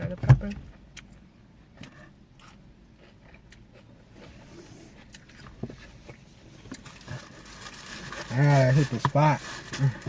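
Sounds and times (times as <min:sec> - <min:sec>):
person chewing food: 0:00.6 - 0:07.7.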